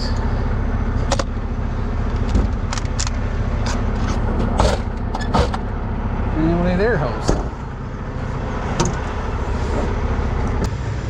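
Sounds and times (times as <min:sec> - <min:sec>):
diesel truck idling: 0:00.0 - 0:11.0
sharp clicks and knocks of fittings: 0:01.1 - 0:01.3, 0:02.0 - 0:05.7.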